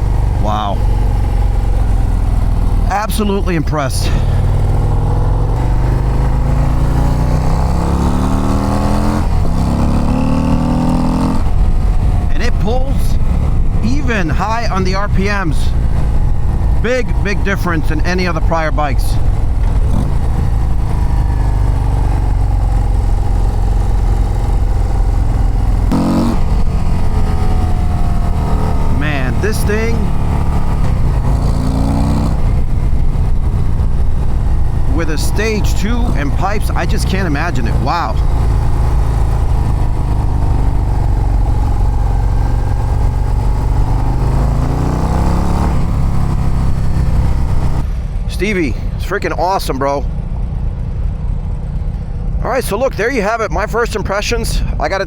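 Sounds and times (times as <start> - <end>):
motorcycle engine accelerating: 0.0 - 53.6.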